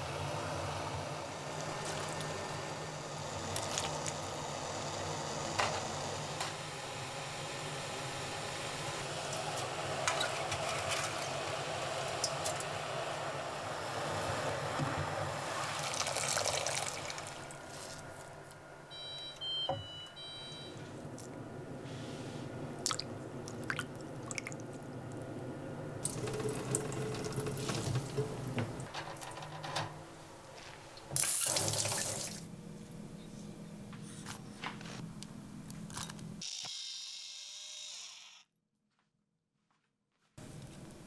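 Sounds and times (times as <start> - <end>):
electronic appliance beeps: 18.9 - 20.8.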